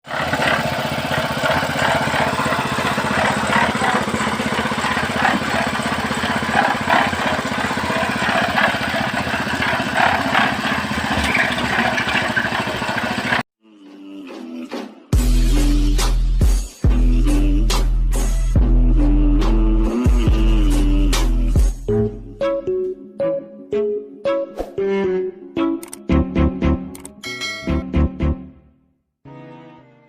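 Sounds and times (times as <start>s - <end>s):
engine running: 0.0s - 13.5s.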